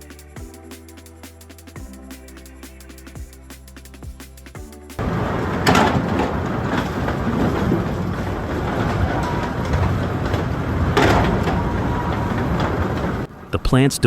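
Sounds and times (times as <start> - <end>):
log-handling machinery clatter: 5.0 - 13.3.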